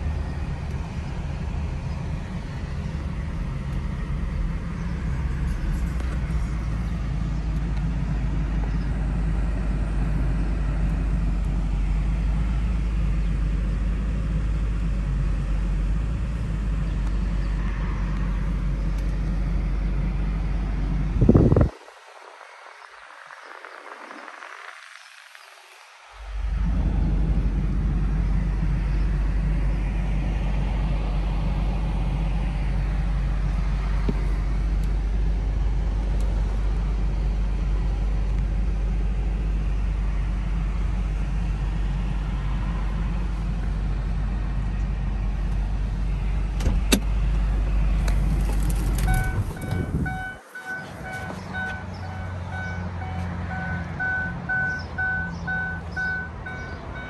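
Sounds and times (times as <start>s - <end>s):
car engine idling: 0.0s - 21.7s, 26.2s - 57.0s
car warning chime beeping: 49.0s - 57.0s.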